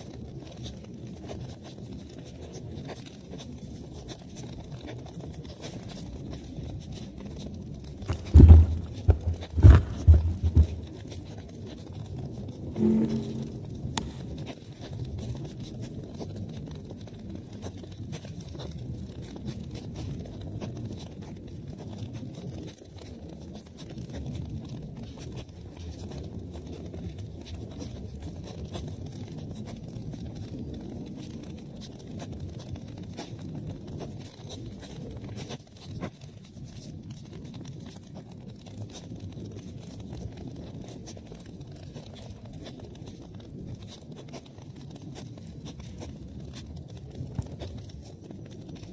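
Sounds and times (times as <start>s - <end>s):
wood fire crackling: 0.0s - 15.2s, 36.0s - 48.9s.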